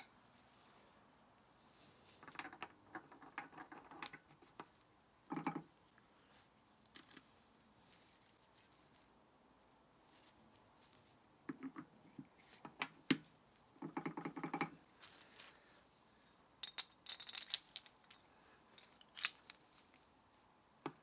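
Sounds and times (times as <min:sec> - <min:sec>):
metal parts clinking and rattling: 0:06.9 - 0:07.3, 0:16.6 - 0:19.6.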